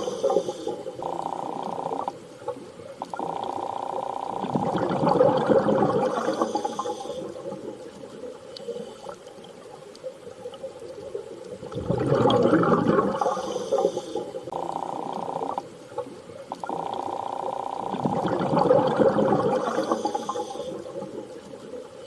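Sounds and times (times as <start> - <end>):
rushing water swells: 4.4 - 14.5.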